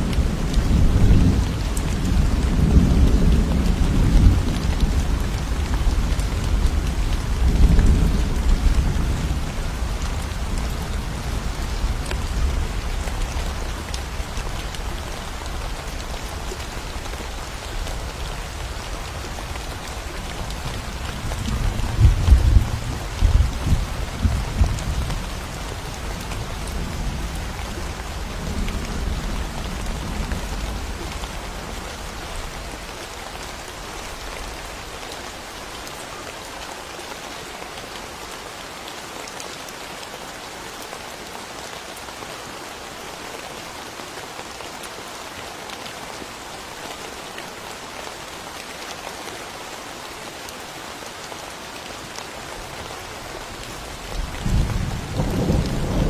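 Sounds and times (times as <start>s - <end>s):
steady rain: 0.0s - 56.0s
thunder rumbling: 21.0s - 32.1s, 53.9s - 56.0s.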